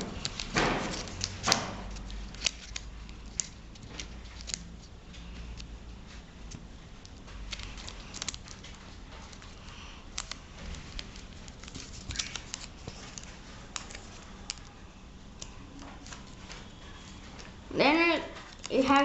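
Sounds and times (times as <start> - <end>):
paper being folded and creased: 0.0 - 6.6, 7.3 - 14.7.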